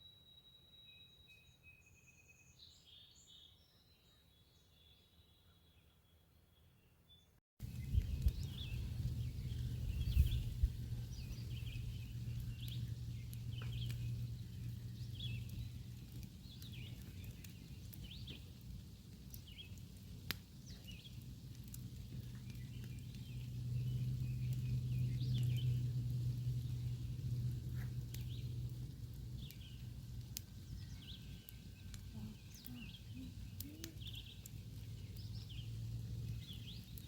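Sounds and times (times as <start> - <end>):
small birds chirping: 0.8 - 37.0
steady low hum: 7.6 - 17.5, 21.6 - 37.0.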